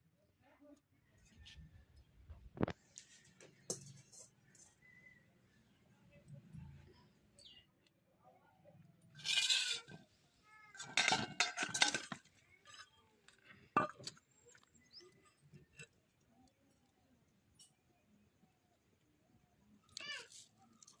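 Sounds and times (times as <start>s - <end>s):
metal pots and utensils clattering: 9.2s - 10.1s, 10.7s - 14.6s.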